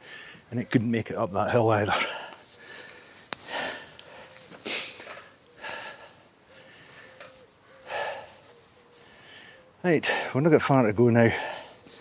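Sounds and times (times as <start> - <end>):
man breathing hard: 2.0 - 10.4, 11.3 - 12.0.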